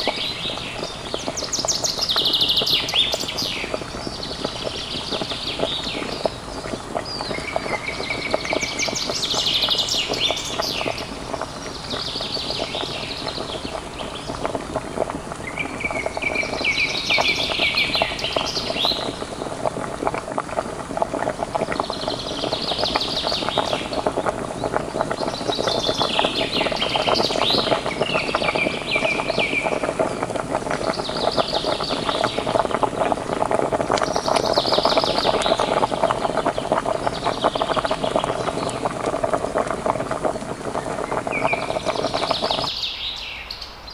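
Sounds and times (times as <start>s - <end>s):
bird chirping: 0.0s - 14.5s, 15.4s - 19.2s, 21.6s - 32.6s, 40.8s - 43.9s
curry bubbling and crackling: 0.0s - 42.8s.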